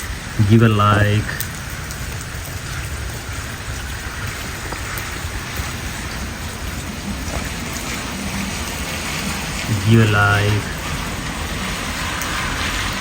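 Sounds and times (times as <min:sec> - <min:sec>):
steady rain falling: 0:00.0 - 0:13.0
faint ticks: 0:04.6 - 0:05.1.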